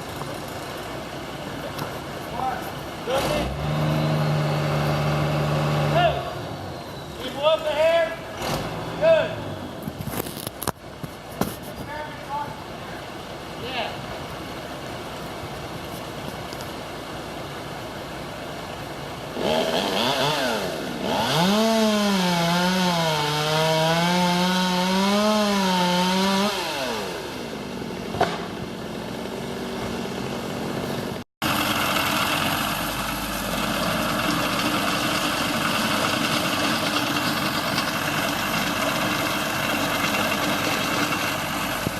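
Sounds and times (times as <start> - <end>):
chainsaw engine revving: 3.0 - 6.5, 8.3 - 9.5, 19.4 - 27.8
steady noisy running sound: 26.5 - 41.9.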